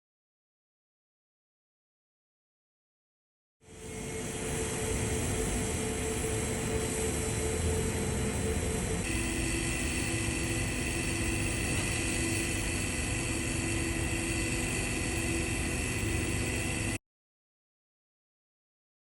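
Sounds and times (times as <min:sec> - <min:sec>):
welding equipment hum and hiss: 0:03.7 - 0:17.0.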